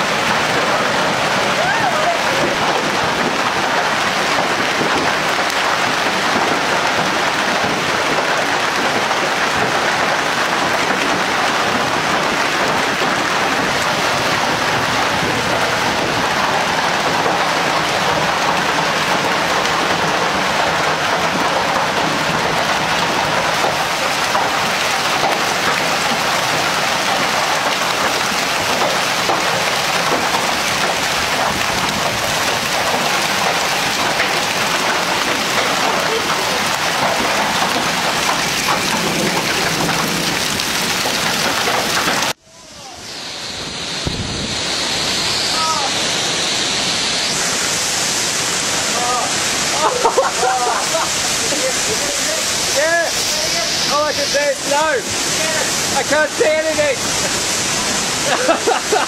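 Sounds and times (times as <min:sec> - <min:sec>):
strong wind: 0:00.0 - 0:59.0
torrential rain and hail: 0:00.0 - 0:59.0.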